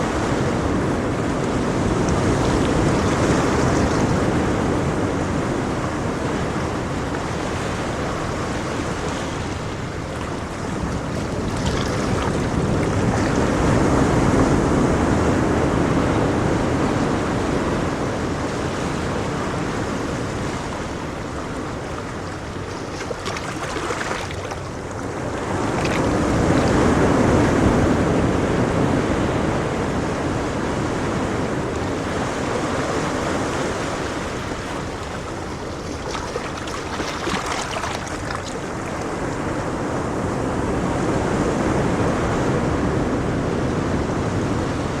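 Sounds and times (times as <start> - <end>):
ocean waves breaking on shore: 0.0 - 45.0.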